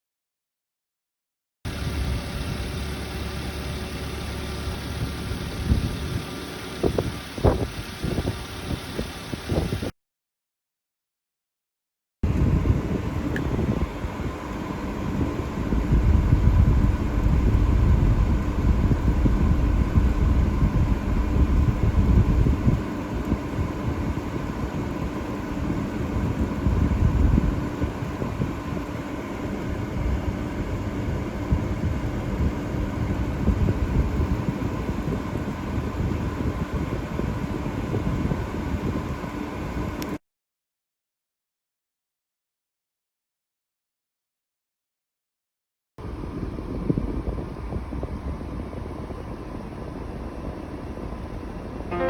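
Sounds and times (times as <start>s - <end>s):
truck engine running: 1.7s - 9.9s, 14.4s - 27.4s.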